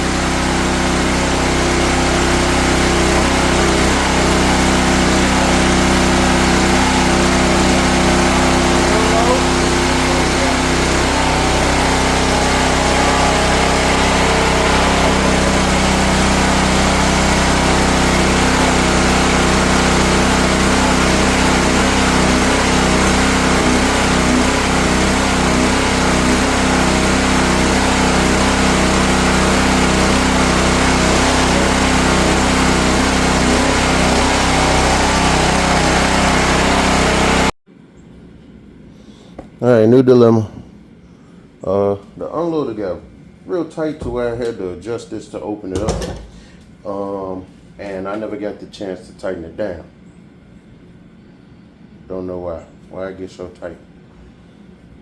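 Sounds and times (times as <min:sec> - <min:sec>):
pressure washer engine running: 0:00.0 - 0:37.6, 0:45.8 - 0:46.6.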